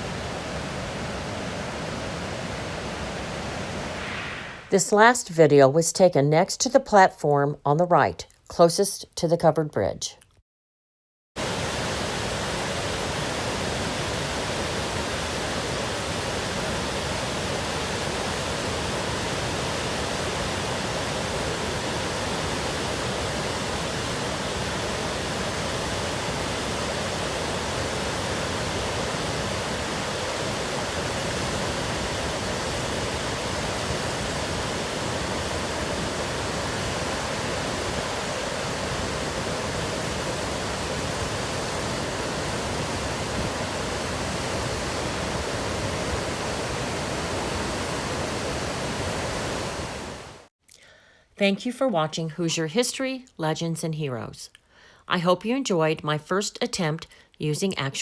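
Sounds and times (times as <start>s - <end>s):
waterfall rushing: 0.0s - 4.7s, 11.4s - 50.5s.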